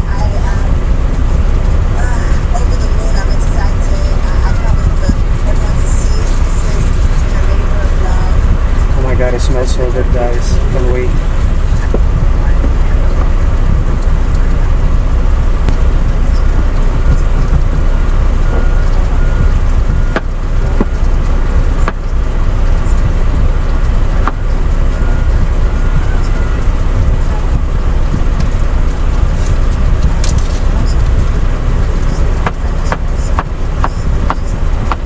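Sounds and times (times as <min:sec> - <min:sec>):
truck engine idling: 0:00.0 - 0:35.0.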